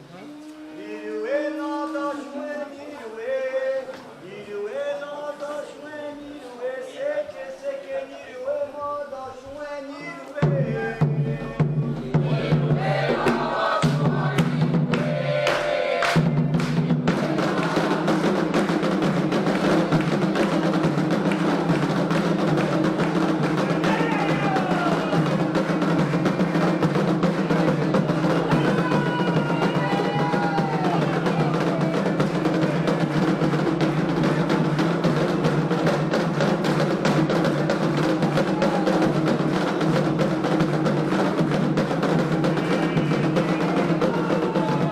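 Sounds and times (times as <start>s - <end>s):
faint voices: 0.0s - 14.4s
hand drums playing fast rhythm: 10.4s - 44.9s.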